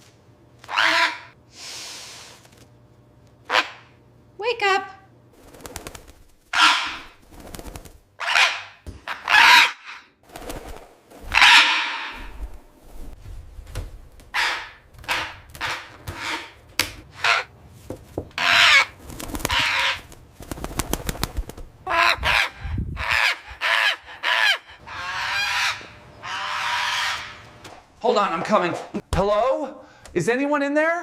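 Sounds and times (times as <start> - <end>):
parrot screaming: 0.7 - 1.4, 3.5 - 3.9, 6.5 - 7.2, 8.2 - 10.1, 11.3 - 12.3, 14.3 - 16.5, 17.2 - 17.5, 18.4 - 18.9, 19.5 - 20.0, 21.8 - 27.4.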